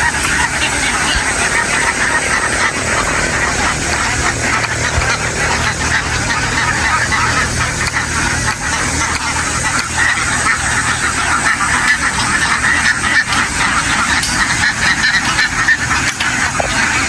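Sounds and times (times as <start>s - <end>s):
flock of ducks quacking: 0.0s - 17.0s
low engine drone: 0.0s - 17.0s.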